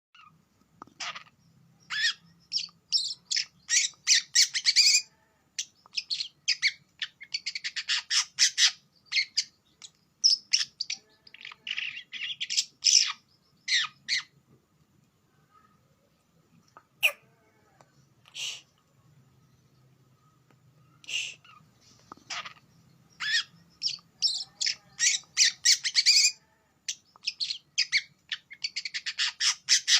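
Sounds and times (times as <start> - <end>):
birds calling with harsh chirps: 0.2 - 14.5, 16.6 - 29.9.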